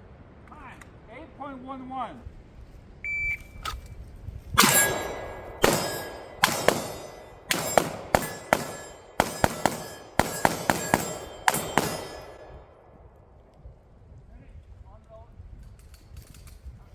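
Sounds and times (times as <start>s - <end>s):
steel targets ringing: 4.6s - 12.8s
rapid pistol shots: 4.6s - 12.9s.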